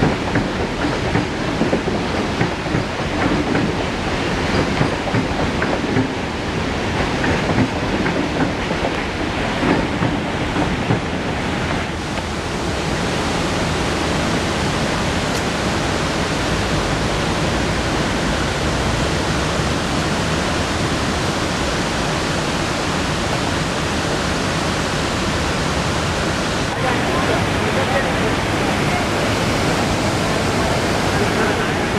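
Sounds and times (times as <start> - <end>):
train wheels clacking over rail joints: 0.0 - 11.8
waterfall rushing: 8.6 - 31.9.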